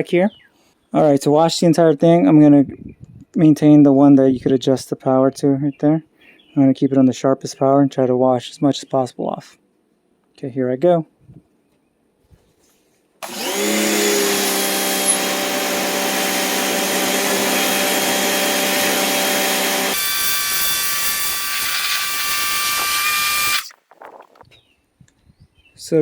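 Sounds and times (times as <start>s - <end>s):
high-pressure water jet hissing: 13.2s - 23.7s
pressure washer motor whine: 13.2s - 23.7s.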